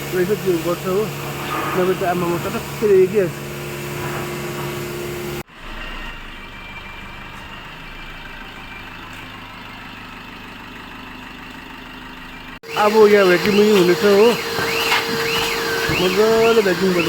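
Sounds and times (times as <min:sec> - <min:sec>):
machine humming: 0:00.0 - 0:06.3, 0:12.3 - 0:17.0.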